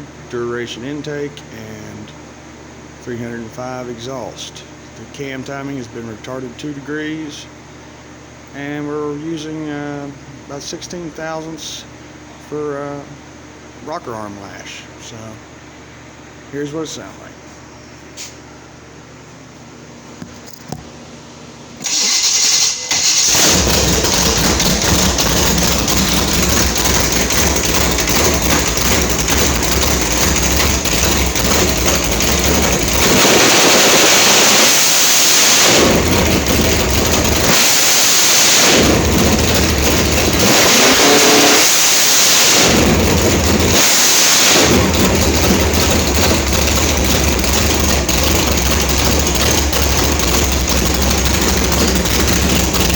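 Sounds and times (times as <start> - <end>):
race car engine starting and revving: 21.8 - 52.9.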